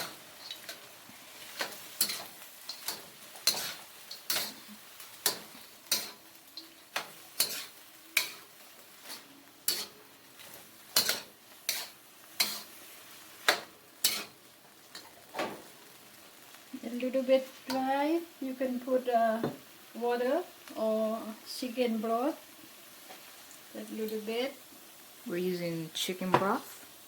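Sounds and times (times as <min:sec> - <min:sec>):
utensil scraping a frying pan: 0:00.0 - 0:15.7
light sizzle: 0:00.0 - 0:27.0.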